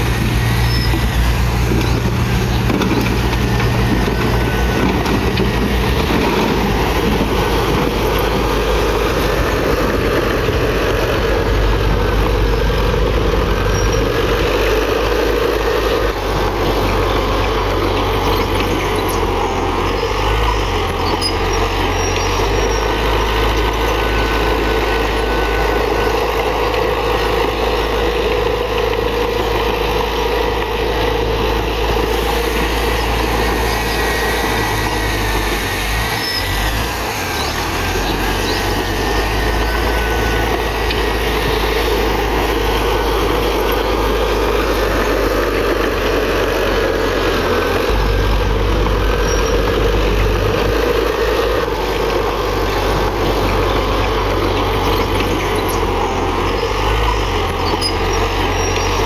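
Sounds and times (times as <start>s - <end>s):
bulldozer diesel engine rumbling: 0.0s - 59.0s
faint high squeal: 0.6s - 1.2s.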